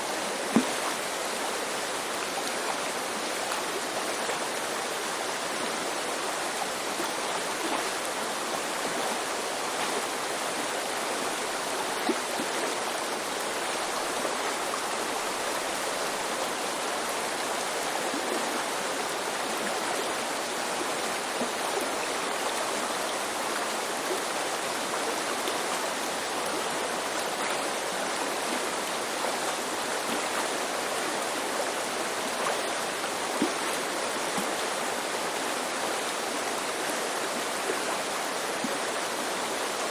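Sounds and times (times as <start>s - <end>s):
river babbling over rocks: 0.0s - 39.9s
water splashes: 0.1s - 5.4s.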